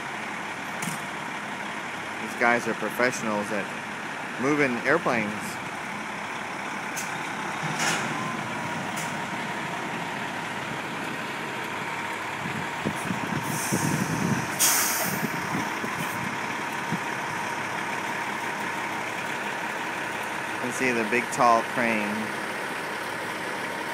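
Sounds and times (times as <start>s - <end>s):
heavy vehicle engine running: 0.0s - 23.9s
brief hisses: 14.6s - 15.1s.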